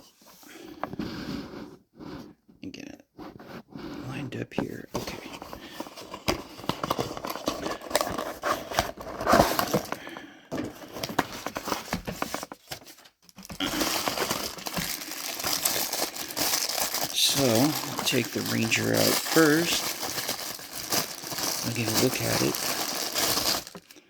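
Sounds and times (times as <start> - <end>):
packaging crinkling and rustling: 5.0 - 24.0.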